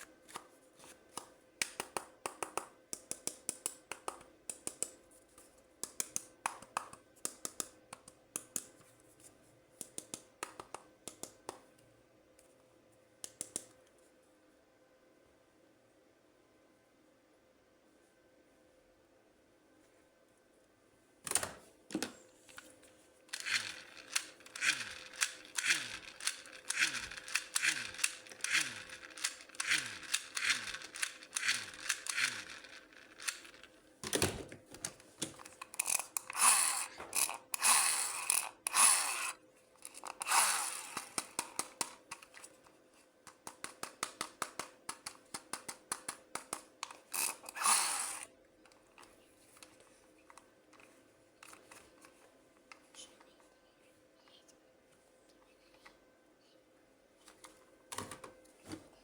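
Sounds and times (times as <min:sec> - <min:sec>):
small plastic clicks: 0:23.3 - 0:33.7.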